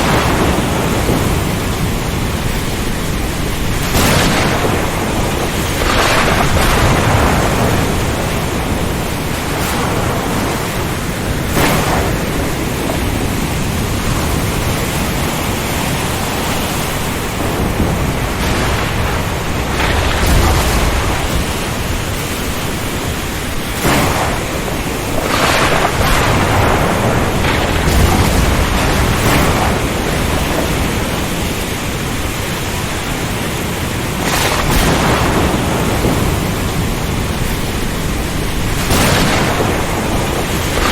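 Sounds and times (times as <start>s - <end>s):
heavy rain: 0.0s - 40.9s
low thunder rumbling: 0.0s - 40.9s
ocean surf: 0.0s - 40.9s
sharp thunder cracks: 0.0s - 40.9s
strong wind: 0.0s - 40.9s.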